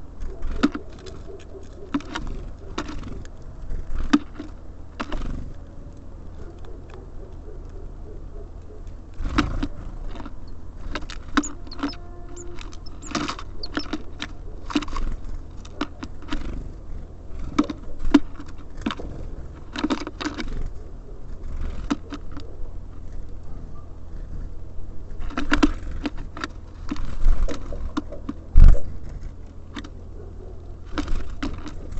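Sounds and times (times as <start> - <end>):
beaks tapping on bird feeder: 9.3 - 15.0.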